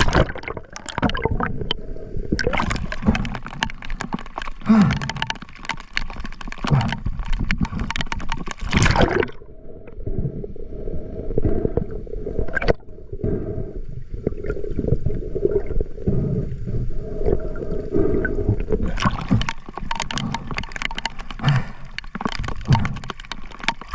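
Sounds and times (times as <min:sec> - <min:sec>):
seawater splashing among rocks: 0:00.0 - 0:01.5, 0:02.4 - 0:09.4, 0:18.8 - 0:23.9.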